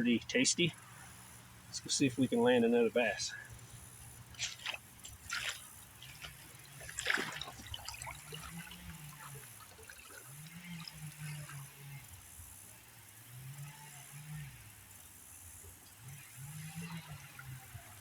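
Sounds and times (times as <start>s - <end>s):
creek water trickling: 0.0s - 18.0s
handling clicks and rustles: 4.2s - 7.8s.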